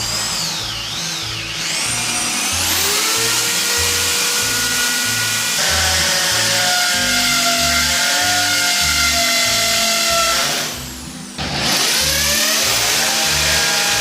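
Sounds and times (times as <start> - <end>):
electric power tool whining: 0.0 - 14.0.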